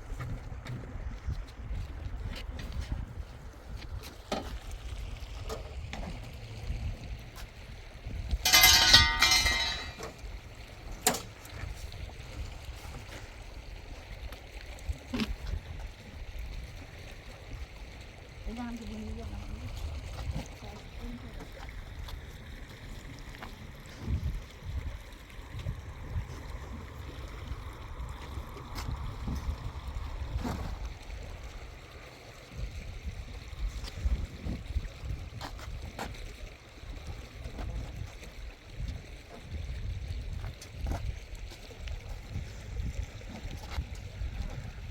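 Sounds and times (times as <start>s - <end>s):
low rumble of water or wind: 0.0s - 44.9s
metal vessel clattering: 8.4s - 10.2s
sharp knocks or splashes: 8.4s - 10.2s.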